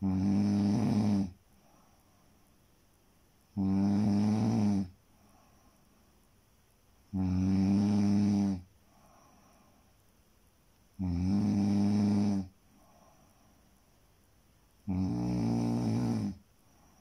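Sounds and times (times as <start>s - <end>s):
person snoring: 0.0s - 1.4s, 3.6s - 4.9s, 7.1s - 8.7s, 11.0s - 12.5s, 14.8s - 16.4s
quiet breathing: 0.0s - 17.0s.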